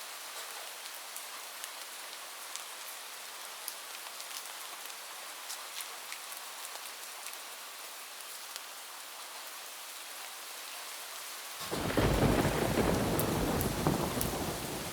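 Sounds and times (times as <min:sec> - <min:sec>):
rain falling on a roof: 0:00.0 - 0:14.9
raindrops ticking: 0:11.6 - 0:14.9.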